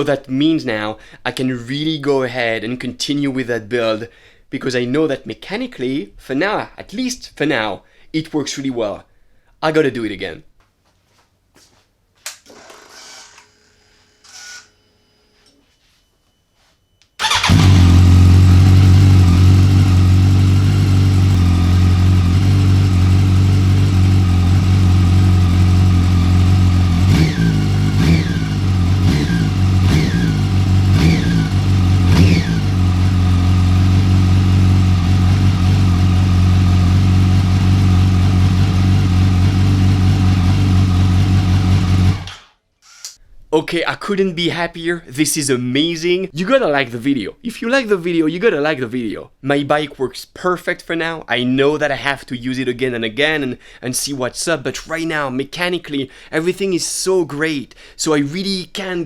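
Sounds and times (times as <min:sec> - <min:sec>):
motorcycle engine idling: 0:17.2 - 0:42.3.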